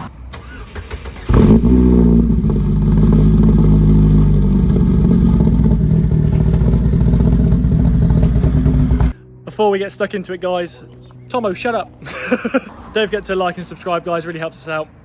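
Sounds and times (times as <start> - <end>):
car engine starting and idling: 0.0 - 9.2.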